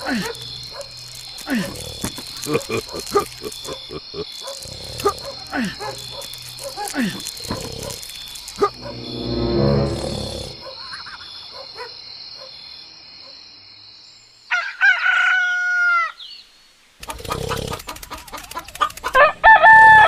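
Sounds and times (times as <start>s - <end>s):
low rumble: 8.6s - 10.7s
rooster crowing: 14.5s - 16.1s, 19.2s - 20.0s
rapid clicks: 17.0s - 19.2s.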